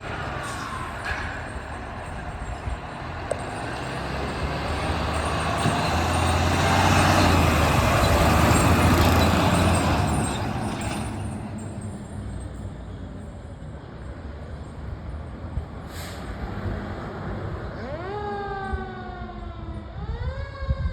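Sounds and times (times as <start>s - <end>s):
vehicle driving past: 0.0s - 12.7s.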